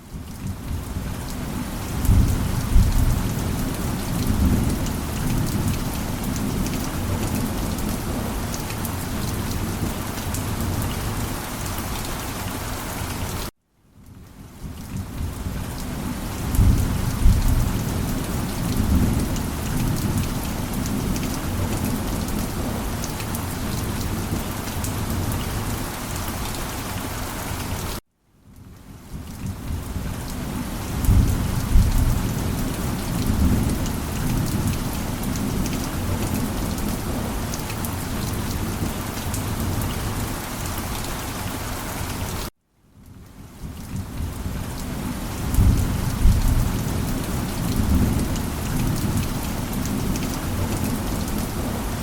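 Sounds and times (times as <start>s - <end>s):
heavy rain: 0.0s - 52.0s
rolling thunder: 16.4s - 20.4s, 31.0s - 37.2s.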